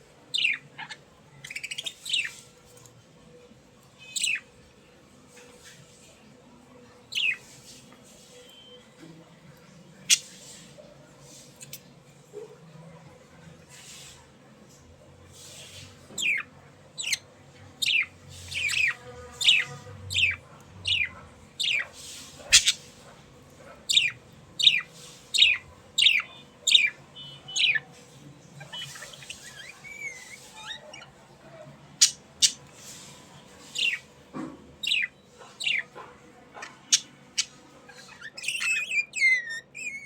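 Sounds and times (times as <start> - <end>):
budgerigars chirping: 0.3 - 2.4, 17.8 - 22.9, 23.8 - 27.9, 28.6 - 31.2, 33.6 - 34.0, 34.8 - 35.9.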